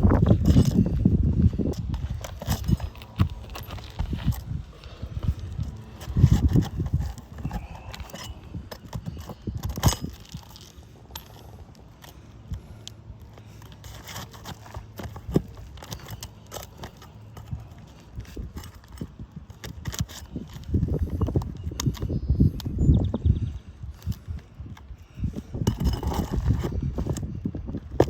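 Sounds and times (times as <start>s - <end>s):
tools scraping roof shingles: 0.0s - 22.3s, 23.9s - 28.0s.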